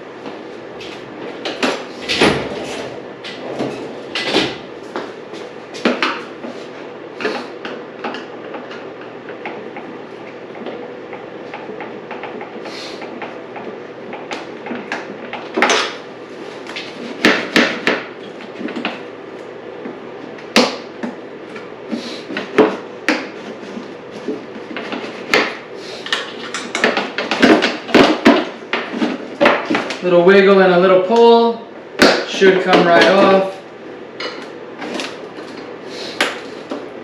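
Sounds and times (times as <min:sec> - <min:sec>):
hand tools clicking and knocking: 0:24.8 - 0:30.0.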